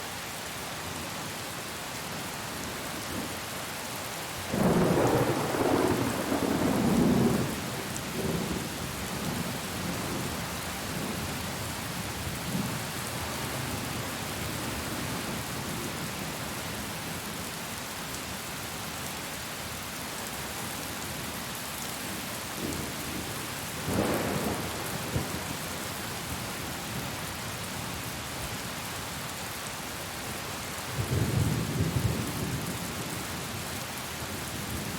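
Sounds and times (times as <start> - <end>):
thunder rumbling: 4.6 - 7.6, 23.8 - 25.5
heavy rain hissing: 22.0 - 27.8.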